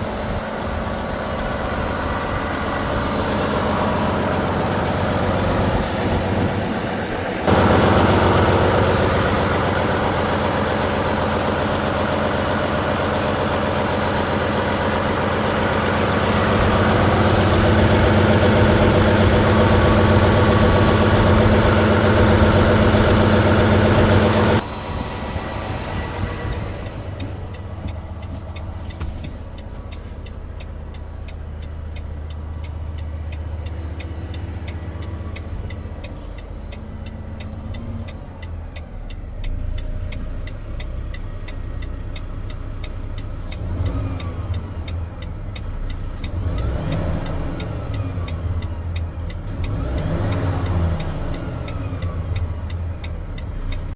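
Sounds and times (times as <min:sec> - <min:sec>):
diesel truck engine idling: 0:00.0 - 0:53.9
fast even ticking: 0:07.4 - 0:24.6.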